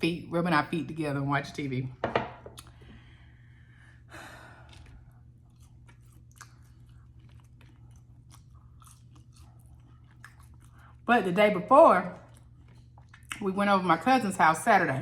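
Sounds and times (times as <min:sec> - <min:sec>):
chewing crunchy fried food: 0:04.4 - 0:14.1.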